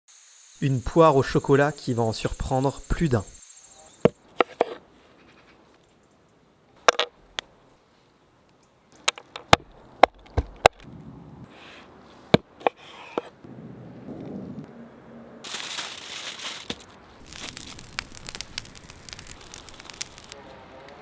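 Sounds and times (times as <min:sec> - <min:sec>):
soft knife scraping: 0:12.6 - 0:13.4.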